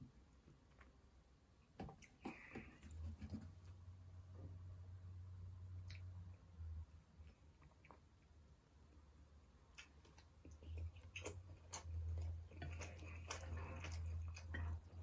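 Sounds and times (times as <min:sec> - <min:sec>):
person chewing food: 0:07.2 - 0:15.0.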